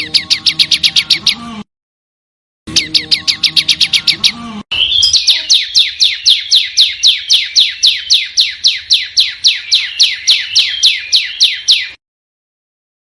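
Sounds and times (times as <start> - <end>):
songbird rapid call: 2.7 - 12.0.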